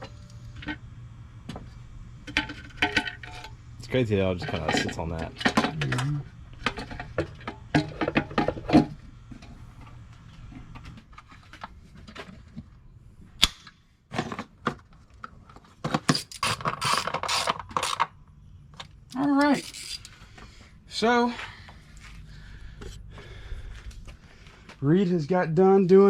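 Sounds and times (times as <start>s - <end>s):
metal tools clinking: 19.1s - 20.2s.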